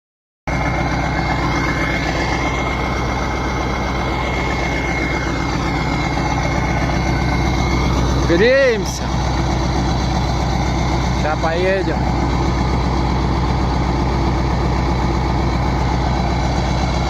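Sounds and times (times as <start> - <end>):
diesel tractor engine idling: 0.5 - 17.0
thin high whine: 0.6 - 13.6.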